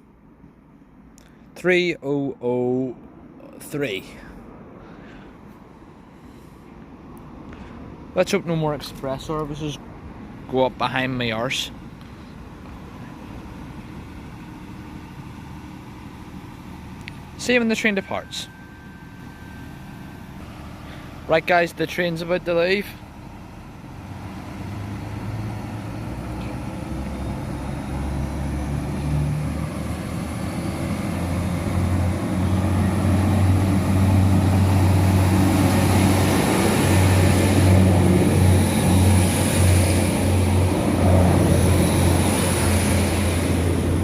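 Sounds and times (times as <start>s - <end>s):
diesel train engines accelerating: 2.0s - 44.0s
faint high whine: 16.8s - 21.6s.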